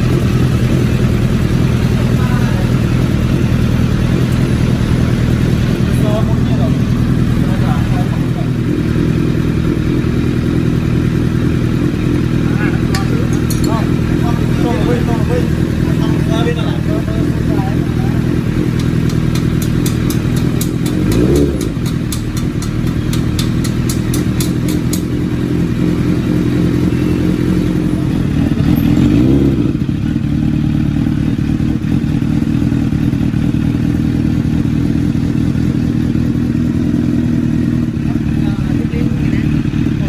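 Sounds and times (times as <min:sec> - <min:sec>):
motorcycle engine idling and revving: 0:00.0 - 0:40.0
light regular ticking: 0:12.1 - 0:26.5.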